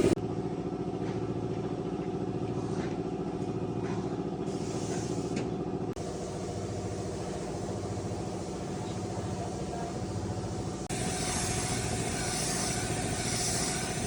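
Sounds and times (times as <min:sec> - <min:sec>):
vehicle engine running: 0:00.0 - 0:14.0
hiss: 0:04.5 - 0:05.3, 0:10.9 - 0:14.0.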